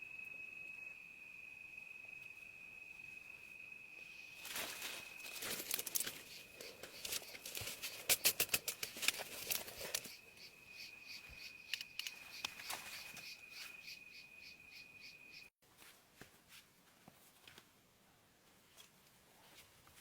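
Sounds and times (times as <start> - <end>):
insects buzzing and chirping: 0.0 - 15.5
crackling and rustling clicks: 5.2 - 10.1.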